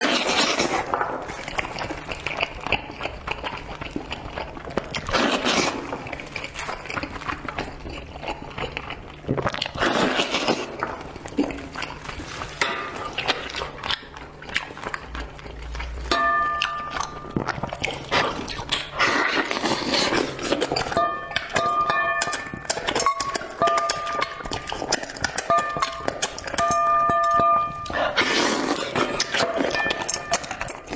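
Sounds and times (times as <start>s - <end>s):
slurping: 0.0s - 21.8s, 27.8s - 30.9s
chewing: 0.0s - 30.9s.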